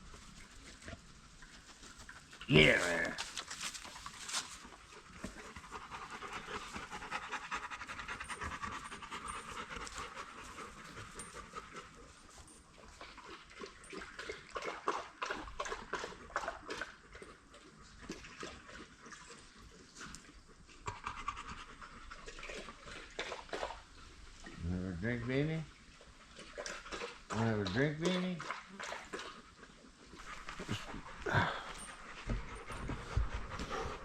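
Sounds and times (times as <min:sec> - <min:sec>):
dog panting: 0:03.8 - 0:23.8, 0:28.8 - 0:34.0.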